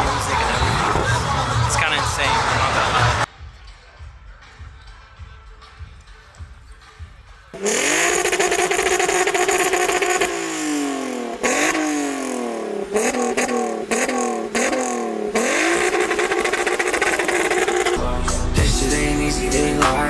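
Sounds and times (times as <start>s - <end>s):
car engine revving: 0.0s - 3.3s, 7.6s - 18.0s.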